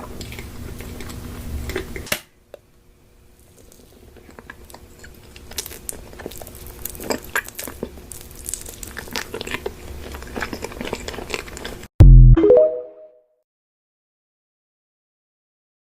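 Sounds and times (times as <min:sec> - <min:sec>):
crunchy chewing: 0:03.4 - 0:11.9
deep tone with rising notes: 0:12.0 - 0:13.0.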